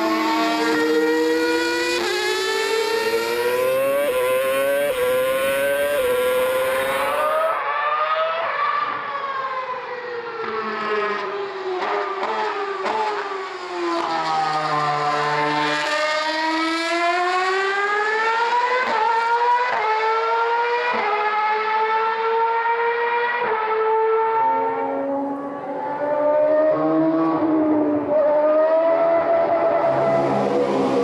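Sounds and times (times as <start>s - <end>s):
racing car engine shifting gears: 0.0s - 8.9s, 25.0s - 31.0s.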